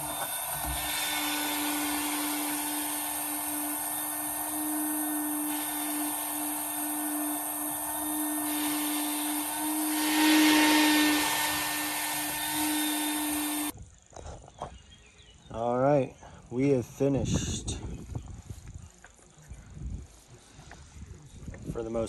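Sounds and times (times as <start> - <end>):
electric sander on wood: 0.0 - 13.7.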